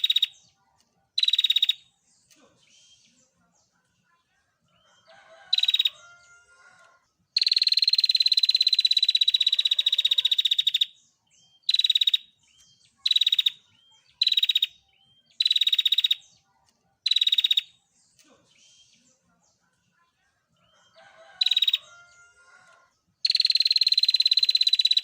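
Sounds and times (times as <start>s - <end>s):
bird trilling call: 1.2s - 1.8s, 11.6s - 12.3s, 13.1s - 13.6s, 14.2s - 16.2s.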